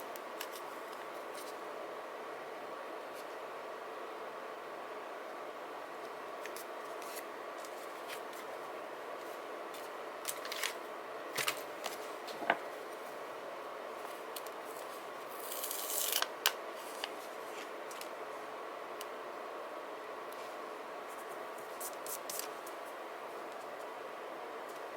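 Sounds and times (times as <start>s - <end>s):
scissors cutting paper: 15.4s - 16.3s.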